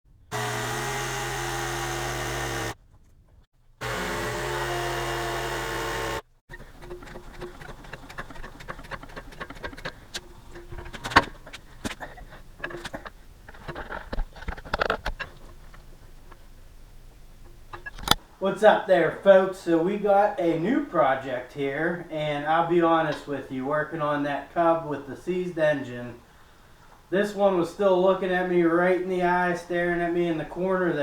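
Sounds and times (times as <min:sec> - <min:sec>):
small engine running: 0:00.3 - 0:02.8, 0:03.8 - 0:10.1.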